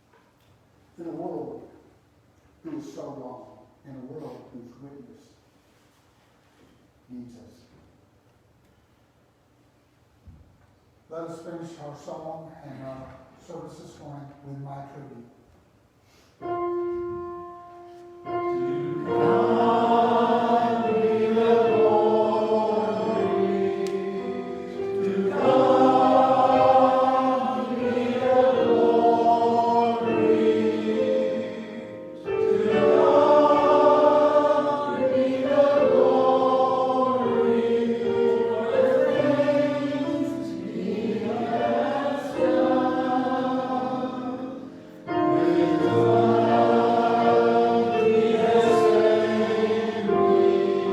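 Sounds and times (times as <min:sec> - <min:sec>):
choir singing a hymn: 0:16.4 - 0:50.9.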